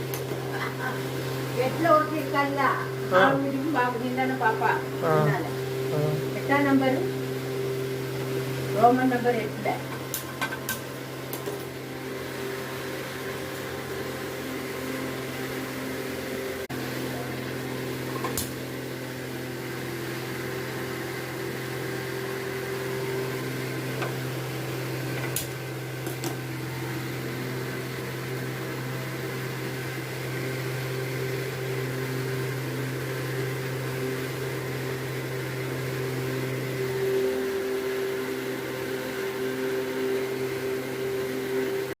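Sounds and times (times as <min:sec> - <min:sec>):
low mechanical hum: 0:00.0 - 0:42.0.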